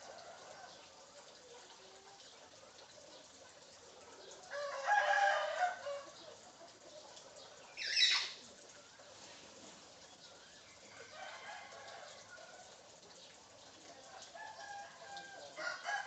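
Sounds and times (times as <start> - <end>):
bird crowing like a rooster: 4.5 - 6.2, 14.4 - 16.0.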